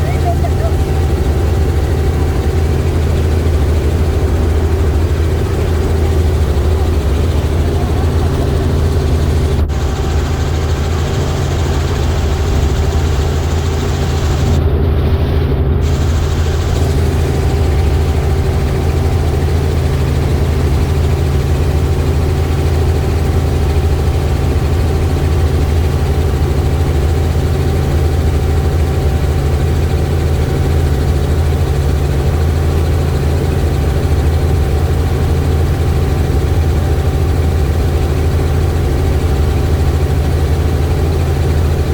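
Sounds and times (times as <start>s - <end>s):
thin steady whine: 0.0s - 21.5s
helicopter engine and rotor drone: 0.0s - 41.9s.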